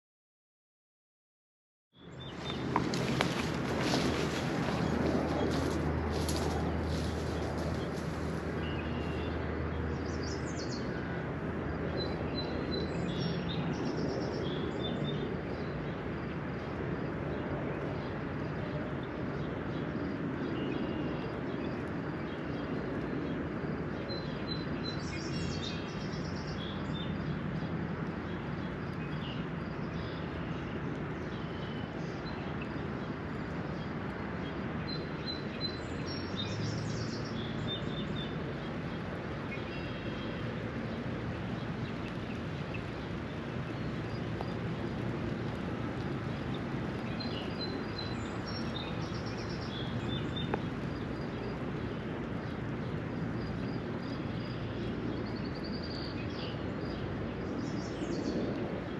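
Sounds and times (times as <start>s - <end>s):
birds singing: 2.0s - 16.3s, 17.3s - 58.9s
rain shower hiss: 2.3s - 9.2s, 36.1s - 55.7s.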